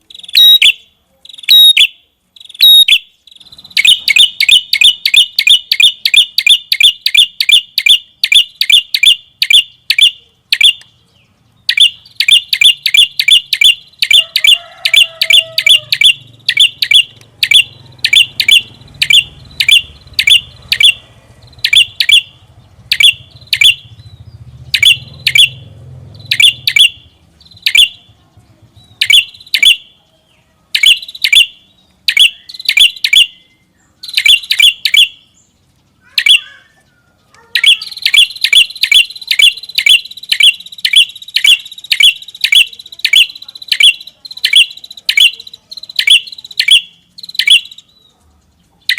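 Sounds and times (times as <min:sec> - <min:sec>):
songbird calling in sharp chips: 0:28.8 - 0:48.9.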